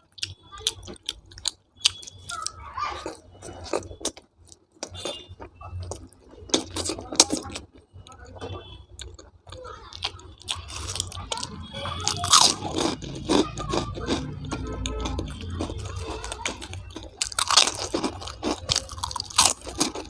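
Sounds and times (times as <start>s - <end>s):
person chewing: 0.0s - 20.0s.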